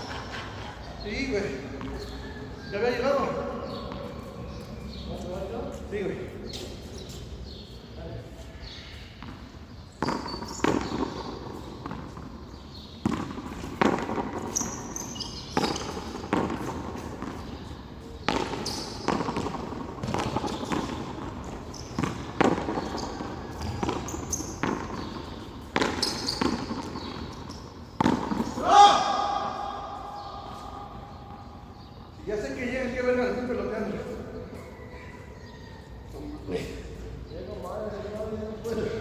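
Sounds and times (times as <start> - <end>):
short high squeaks: 25.9 - 26.6.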